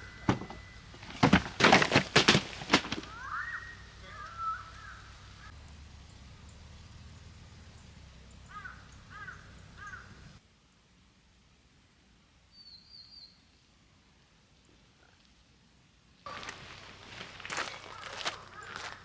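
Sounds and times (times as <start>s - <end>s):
bird calling: 0.0s - 1.5s, 2.6s - 10.4s, 16.3s - 19.0s
low steady rumble: 3.1s - 12.4s
small bird chirping trill: 12.5s - 13.6s.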